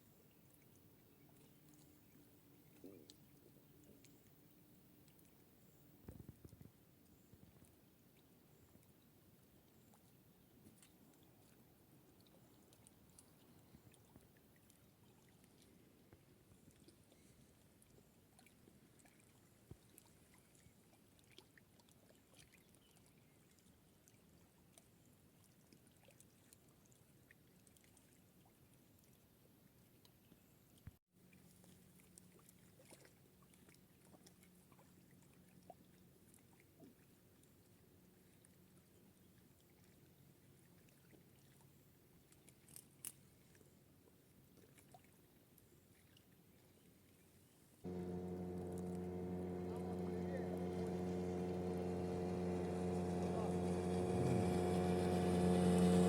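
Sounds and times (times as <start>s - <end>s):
faint clicks and ticks: 47.9s - 56.0s.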